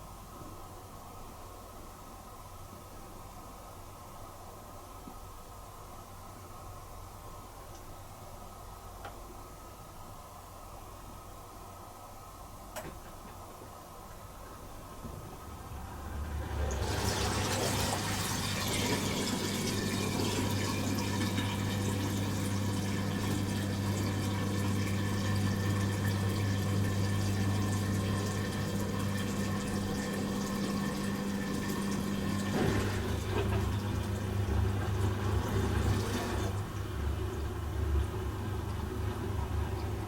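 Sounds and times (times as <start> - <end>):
dishwasher pump humming: 14.5 - 40.0
water rushing and splashing: 15.5 - 26.2.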